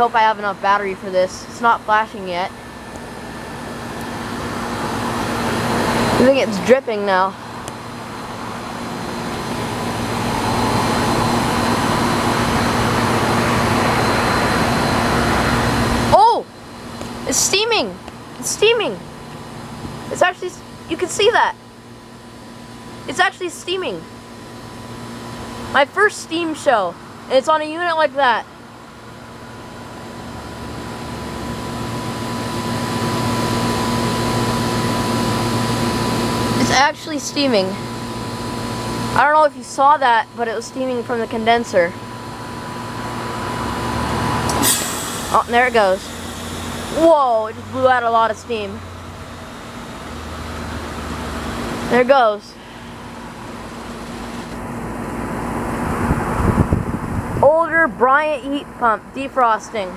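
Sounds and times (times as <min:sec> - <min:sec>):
heat pump rushing noise: 0:00.0 - 0:59.9
low hum: 0:27.8 - 0:59.9.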